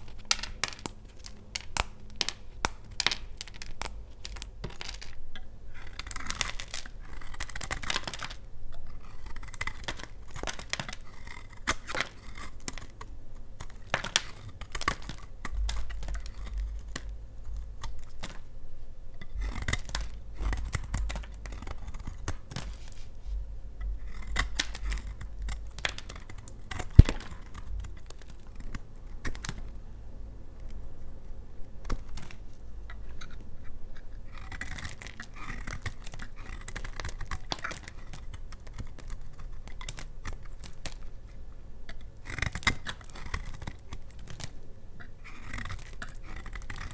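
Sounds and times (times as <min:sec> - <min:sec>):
knife cutting soap: 0:00.0 - 0:18.5, 0:19.1 - 0:29.7, 0:31.8 - 0:46.9
loud snap: 0:27.0 - 0:27.3.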